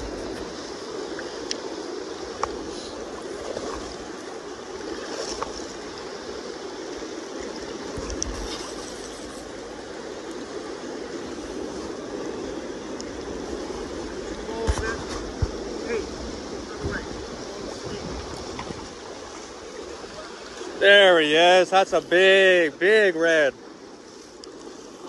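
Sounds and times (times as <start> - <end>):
river water rushing: 0.0 - 25.0
faint ticks: 1.4 - 1.6, 24.3 - 24.7.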